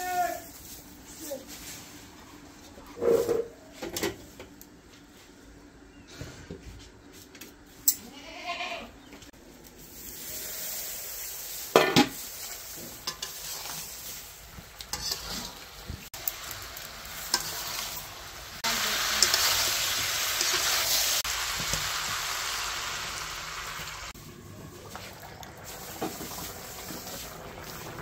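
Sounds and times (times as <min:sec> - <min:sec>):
vegetables sizzling in oil: 0:09.4 - 0:28.0
metal pots and lids clanking: 0:11.7 - 0:12.2
metal spatula scraping and stirring: 0:11.7 - 0:21.2.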